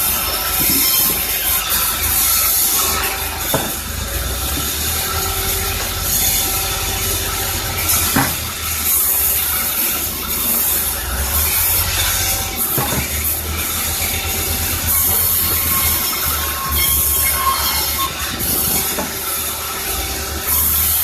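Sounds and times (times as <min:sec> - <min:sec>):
sawmill machinery humming: 0:00.0 - 0:21.0
sharp knocks: 0:03.5 - 0:03.8, 0:08.0 - 0:08.6, 0:12.7 - 0:13.3.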